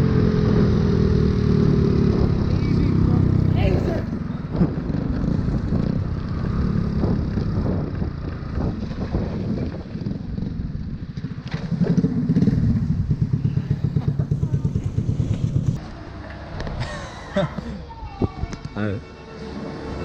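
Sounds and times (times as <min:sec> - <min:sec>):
motorbike engine running: 0:00.0 - 0:15.8.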